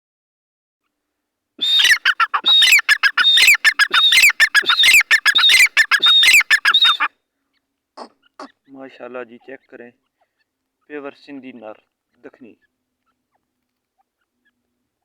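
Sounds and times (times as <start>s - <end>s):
francolin calling: 1.6s - 7.1s.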